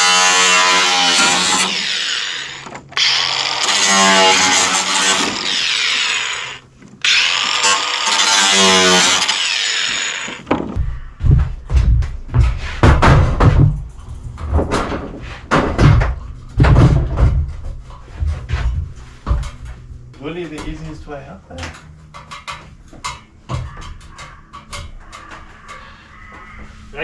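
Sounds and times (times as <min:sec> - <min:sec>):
power drill running: 0:00.0 - 0:10.5
heavy thumps and knocks: 0:10.4 - 0:19.8.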